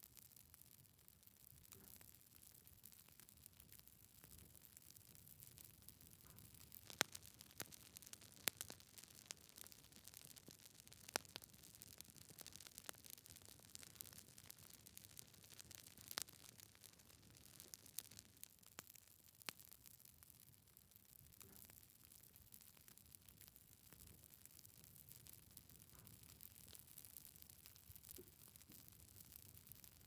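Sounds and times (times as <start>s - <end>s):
logs crackling in a fireplace: 0.0s - 30.0s.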